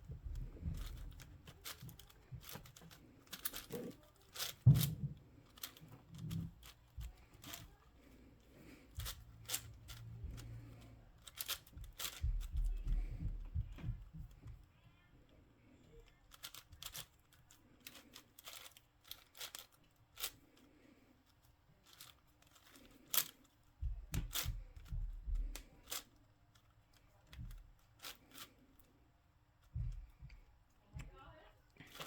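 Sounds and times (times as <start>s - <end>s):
speed cube layers clicking: 0.7s - 4.9s, 11.2s - 12.7s.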